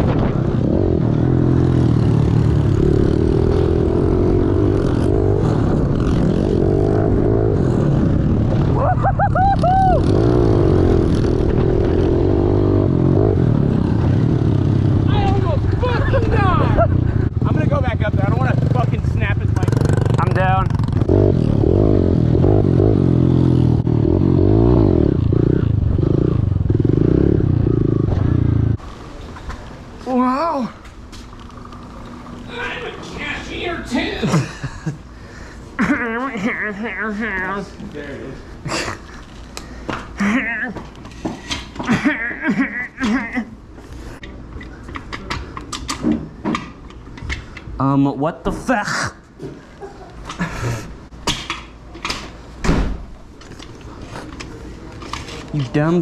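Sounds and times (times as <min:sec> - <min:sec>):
pit bike engine revving: 0:00.0 - 0:29.2.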